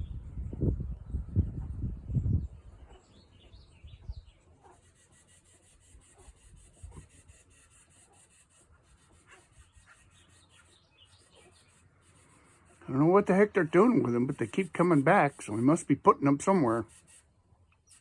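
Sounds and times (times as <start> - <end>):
faint bird chirps: 9.5 - 11.8.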